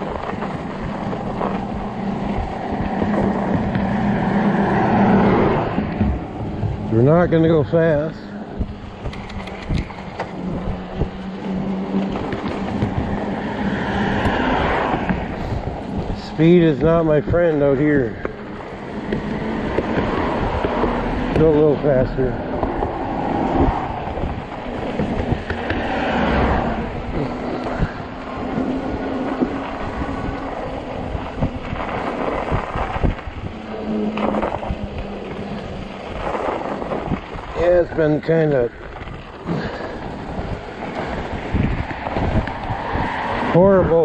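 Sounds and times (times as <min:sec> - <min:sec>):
bike knocking over bumps: 0:00.0 - 0:37.9
electric motor hum: 0:00.0 - 0:43.6
tyres rumbling on snow and ice: 0:00.0 - 0:44.0
wind on microphone: 0:00.0 - 0:44.0.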